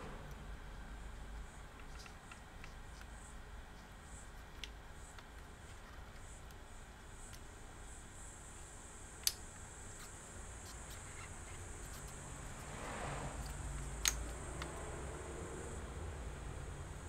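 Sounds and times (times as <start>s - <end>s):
faint steady hum: 0.0s - 17.0s
laptop parts clicking: 1.4s - 6.6s, 13.4s - 14.9s.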